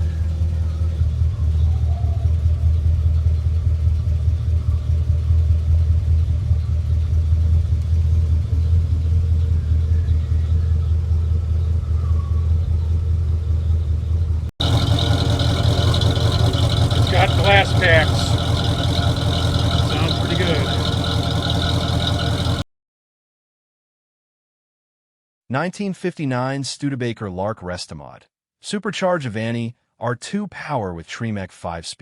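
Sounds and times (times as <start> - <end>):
car engine running: 14.6 - 22.6.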